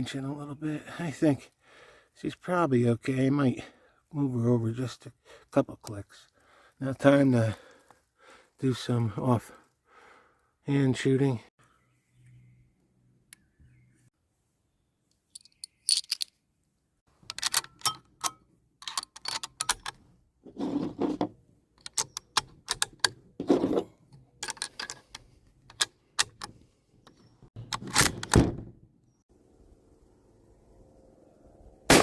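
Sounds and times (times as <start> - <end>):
rifle bolt clicks and clacks: 17.3 - 20.0, 21.8 - 23.2, 24.4 - 26.6.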